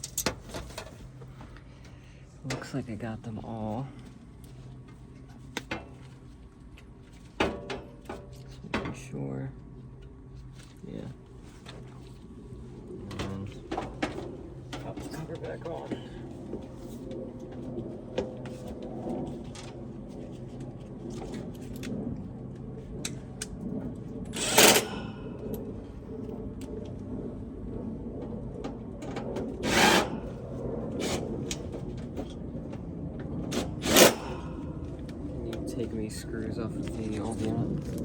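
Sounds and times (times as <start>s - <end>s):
steady low hum: 0.0s - 38.0s
loud noisy bursts: 24.3s - 25.4s, 29.6s - 31.3s, 33.5s - 34.8s.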